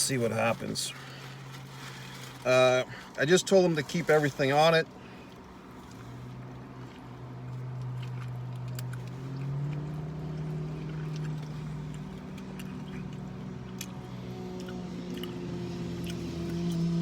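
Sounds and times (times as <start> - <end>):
low motor hum: 5.3 - 17.0.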